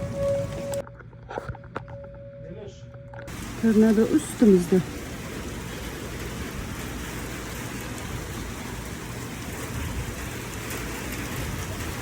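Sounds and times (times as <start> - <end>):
rain on a car: 0.0 - 0.8, 3.3 - 12.0.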